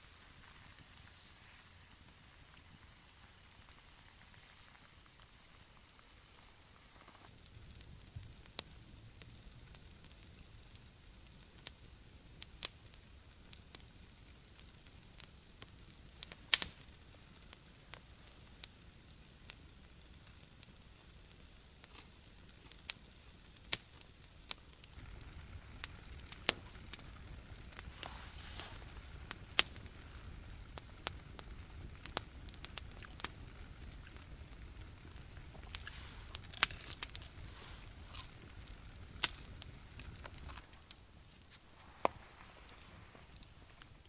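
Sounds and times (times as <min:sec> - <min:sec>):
campfire crackling: 0:00.0 - 0:44.0
low background rumble: 0:24.8 - 0:44.0.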